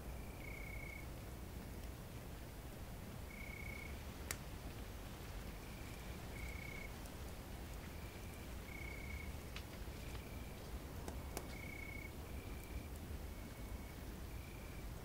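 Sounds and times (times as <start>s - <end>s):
crickets trilling: 0.1s - 1.1s, 3.3s - 4.0s, 5.6s - 7.0s, 7.8s - 15.0s
campfire crackling pop: 3.7s - 14.0s.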